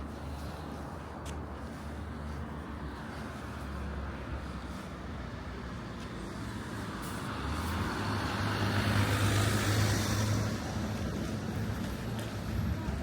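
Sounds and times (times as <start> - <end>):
vehicle passing close by: 6.4 - 11.0.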